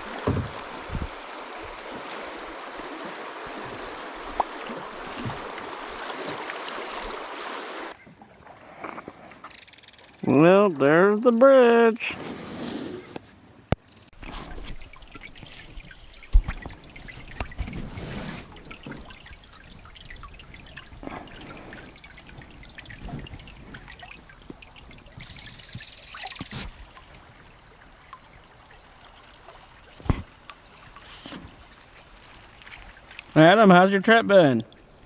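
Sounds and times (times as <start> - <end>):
paddle splashing water: 0.0 - 9.6, 14.2 - 35.0
knocks on canoe: 0.2 - 1.2, 16.3 - 17.9, 30.0 - 30.4.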